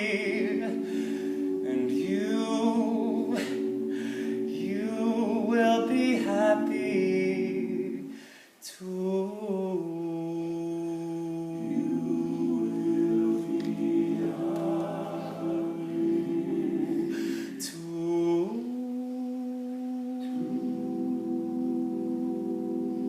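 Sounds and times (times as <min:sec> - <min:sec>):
male a cappella group singing: 0:00.0 - 0:23.0.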